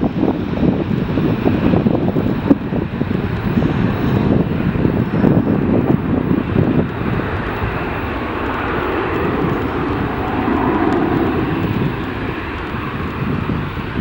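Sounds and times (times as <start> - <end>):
jet engines rumbling: 0.0 - 14.0
wind buffeting microphone: 0.0 - 14.0.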